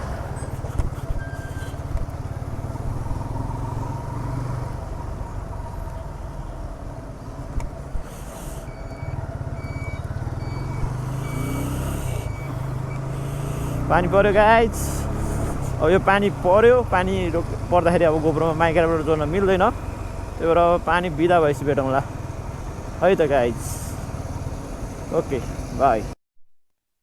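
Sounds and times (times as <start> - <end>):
vehicle electronic beeper: 1.1 - 1.8, 8.6 - 14.0.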